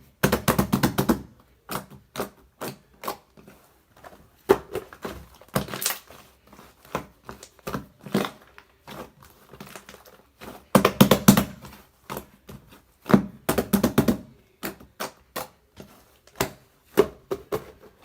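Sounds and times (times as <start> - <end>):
slime squished by hand: 4.6 - 11.4.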